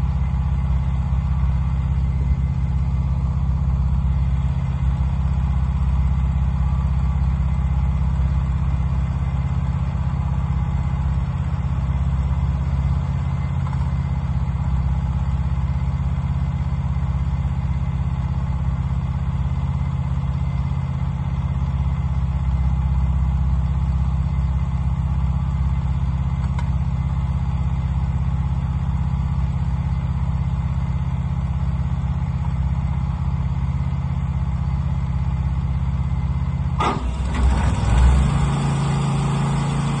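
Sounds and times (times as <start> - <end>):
band sawmill running: 36.8 - 40.0.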